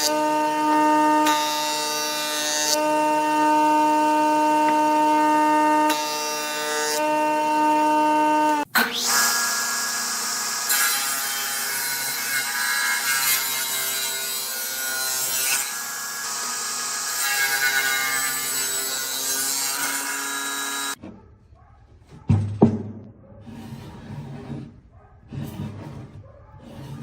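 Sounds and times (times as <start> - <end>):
power saw cutting wood: 0.0 - 21.0.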